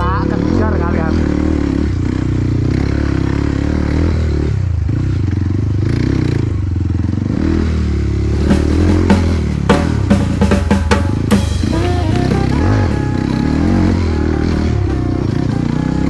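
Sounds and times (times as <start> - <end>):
motorcycle engine running: 0.0 - 16.0
drum beats: 8.4 - 16.0.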